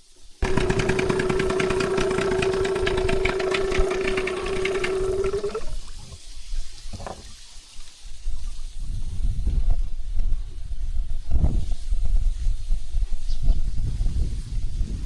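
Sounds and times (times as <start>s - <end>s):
fishing reel whirring and clicking: 0.4s - 5.9s.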